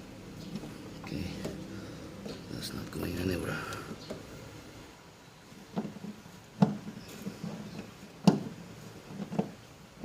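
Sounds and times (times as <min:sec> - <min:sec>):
hard parts knocking: 0:05.7 - 0:09.6.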